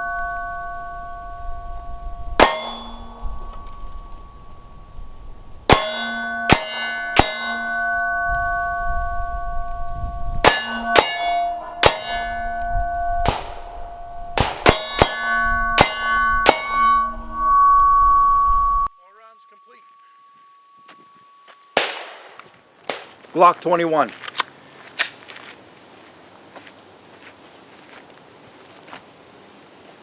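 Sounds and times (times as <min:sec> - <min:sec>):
steel plates ringing: 0:00.0 - 0:22.0
pistol shots: 0:14.4 - 0:15.1, 0:21.8 - 0:23.1.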